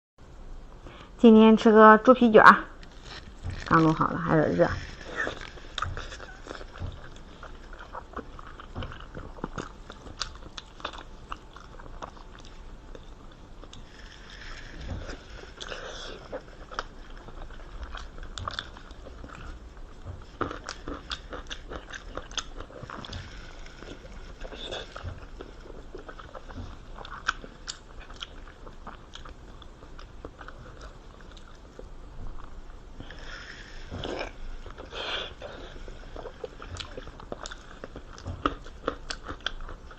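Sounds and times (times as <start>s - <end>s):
crunchy chewing: 2.8s - 39.9s.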